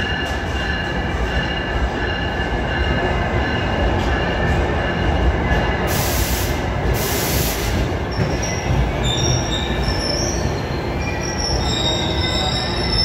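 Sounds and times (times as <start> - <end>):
rumble of wheels on rail: 0.0 - 13.0
high wheel squeals: 8.2 - 13.0.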